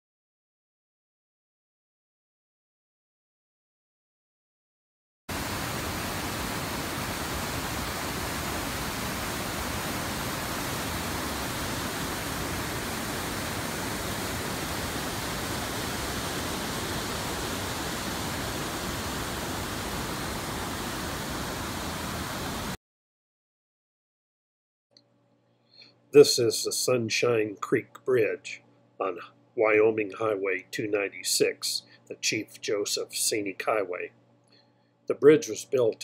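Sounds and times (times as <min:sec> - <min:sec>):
steady rushing noise: 0:05.3 - 0:22.8.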